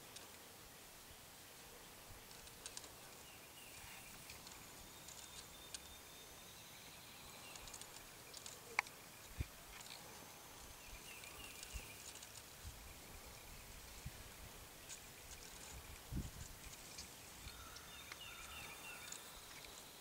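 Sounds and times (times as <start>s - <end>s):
faint high bird chirps: 3.2s - 14.1s, 16.6s - 20.0s.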